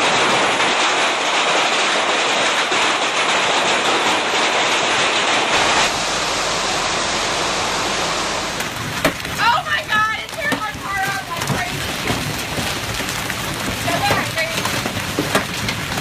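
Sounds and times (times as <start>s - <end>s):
heavy hail pelting: 0.0s - 16.0s
low hum: 4.8s - 10.8s.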